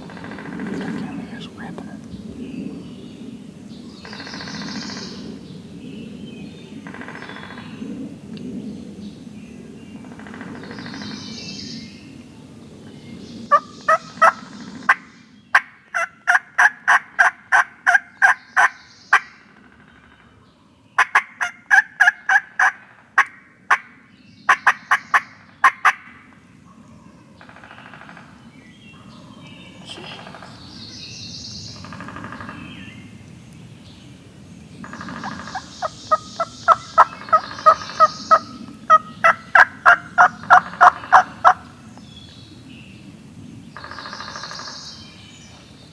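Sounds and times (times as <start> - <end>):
turkeys yelping: 21.1 - 23.3, 34.9 - 41.6
distant turkey gobbles: 34.8 - 41.7.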